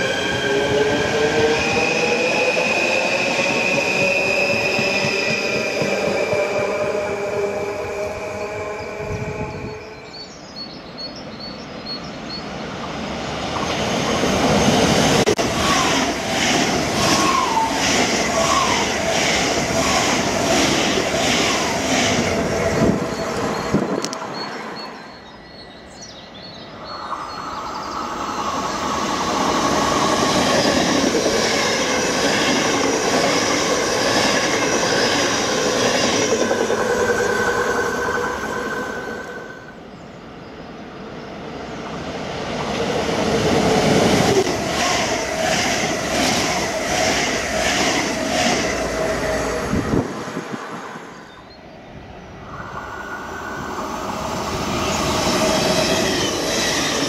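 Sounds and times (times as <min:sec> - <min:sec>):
electric trains passing: 0:00.0 - 0:57.0.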